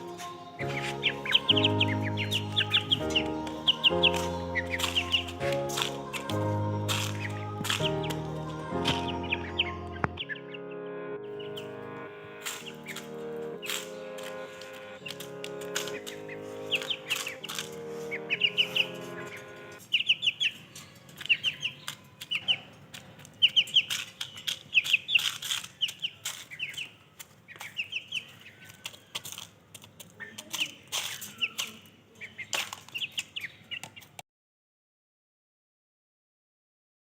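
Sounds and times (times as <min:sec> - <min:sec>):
background music: 0:00.0 - 0:19.8
chickens chirping: 0:00.0 - 0:34.2.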